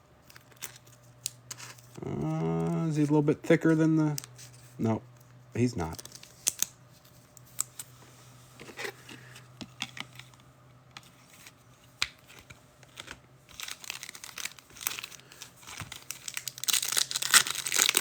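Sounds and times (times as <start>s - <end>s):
card packs crinkling: 0.2s - 4.8s, 5.6s - 7.9s, 11.2s - 18.0s.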